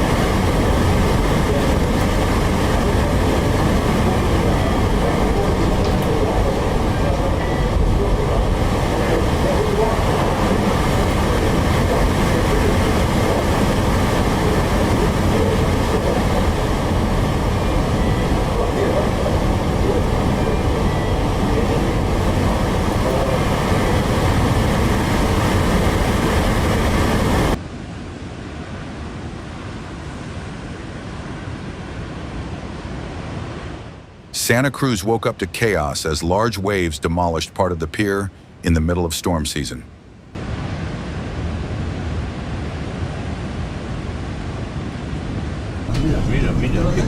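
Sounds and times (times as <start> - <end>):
loud steady rumbling: 0.0 - 27.8, 40.0 - 47.0
dull rushing noise: 0.0 - 37.1, 40.0 - 47.0.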